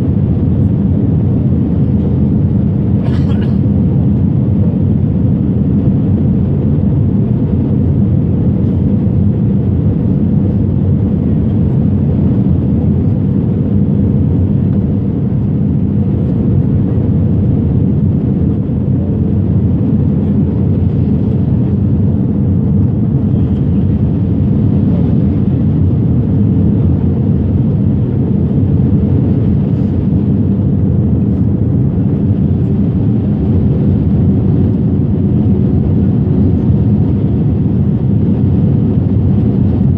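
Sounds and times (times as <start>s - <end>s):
airliner engines droning: 0.0s - 39.9s.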